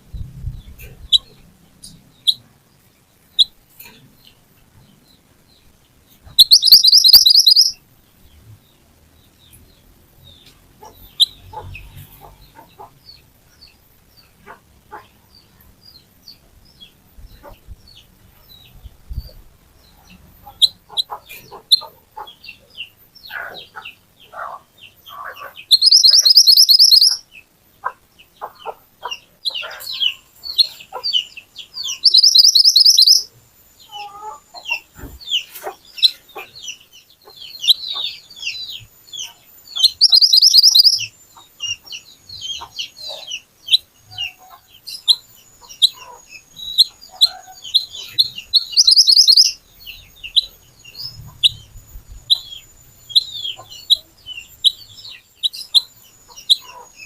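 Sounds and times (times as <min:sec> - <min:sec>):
songbird sharp chirps: 0:00.2 - 0:57.0
songbird high trills: 0:06.4 - 0:07.8, 0:25.7 - 0:27.2, 0:29.9 - 0:33.3, 0:37.5 - 0:41.8, 0:43.7 - 0:56.6.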